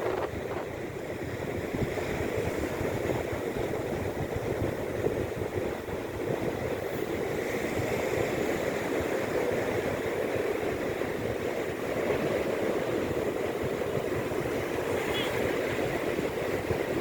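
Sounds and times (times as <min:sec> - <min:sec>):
sea surf washing on shore: 0:00.0 - 0:17.0.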